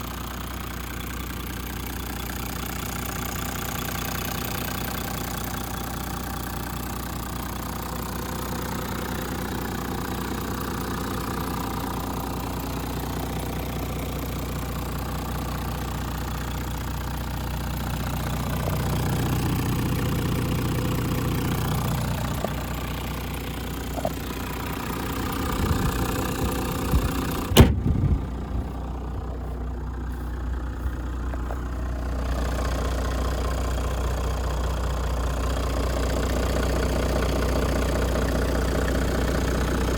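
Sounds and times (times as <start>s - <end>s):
diesel engine idling: 0.0s - 39.9s
sharp bang: 27.5s - 28.3s.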